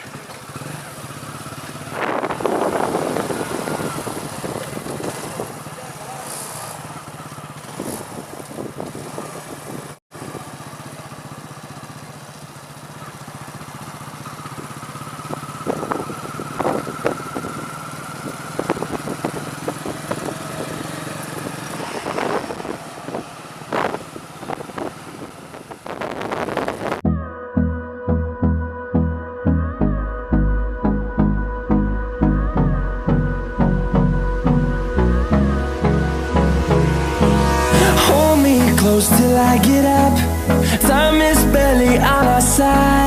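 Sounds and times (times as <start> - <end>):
road and wind noise: 0.0 - 27.0, 32.5 - 43.0
motorcycle engine running: 0.0 - 27.3, 29.9 - 43.0
rising whine: 21.2 - 43.0.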